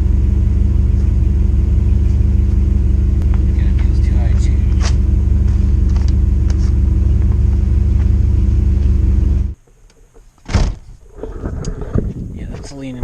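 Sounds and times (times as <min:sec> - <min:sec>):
motorhome engine idling: 0:00.0 - 0:09.6
loud thump: 0:10.4 - 0:11.0.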